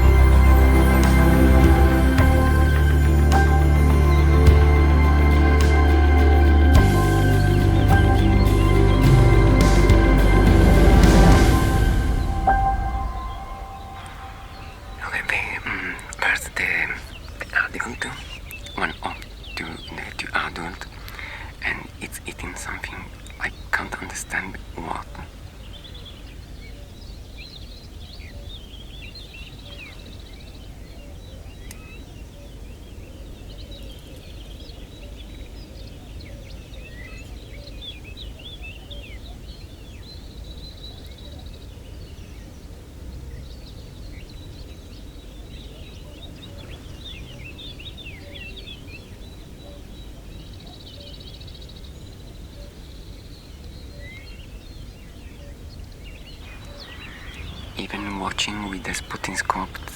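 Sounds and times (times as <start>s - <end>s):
low outdoor rumble: 0.0s - 18.2s
small birds chirping: 13.1s - 59.9s.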